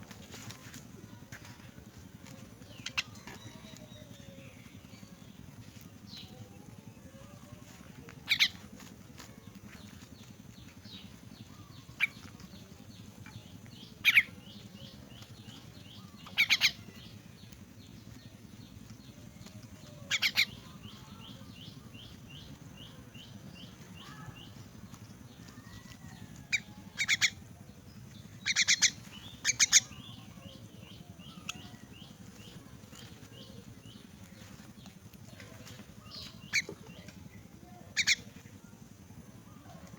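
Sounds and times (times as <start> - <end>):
harsh bird squawks: 8.2 - 8.6, 14.0 - 14.3, 16.3 - 16.8, 28.4 - 30.2, 38.0 - 38.2
rapid soft bird chirps: 28.4 - 35.4.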